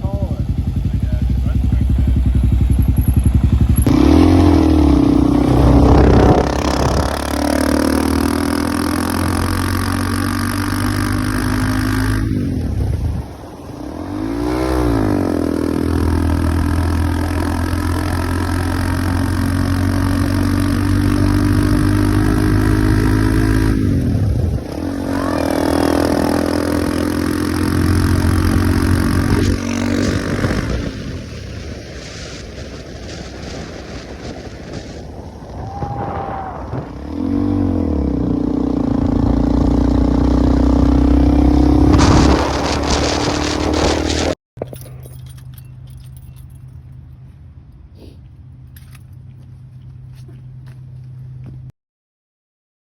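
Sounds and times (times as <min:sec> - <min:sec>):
motorcycle engine revving: 0:00.0 - 0:31.7, 0:35.7 - 0:44.4.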